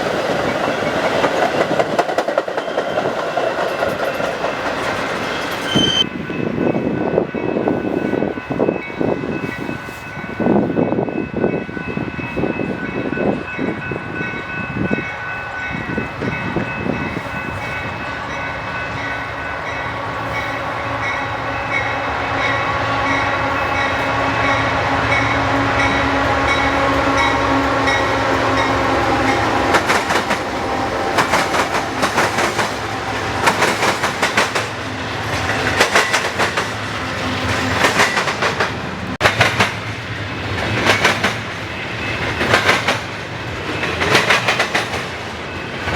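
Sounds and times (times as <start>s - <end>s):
train wheels clacking on rails: 0.0s - 15.0s, 15.6s - 45.9s
train horn chord: 19.4s - 29.7s.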